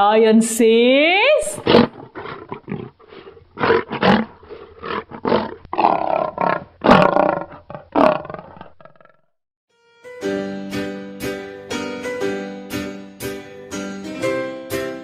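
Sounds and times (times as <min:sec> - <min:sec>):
lion grunting: 0:01.6 - 0:09.2
lion roaring: 0:01.6 - 0:09.2.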